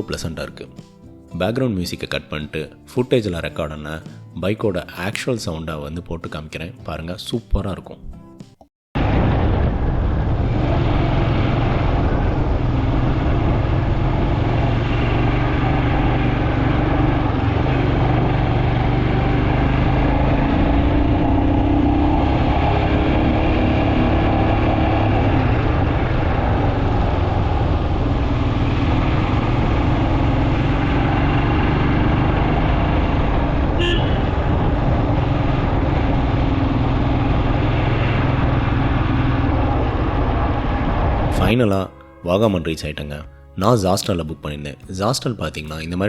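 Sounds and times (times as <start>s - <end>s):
motorcycle engine running: 9.0s - 41.5s.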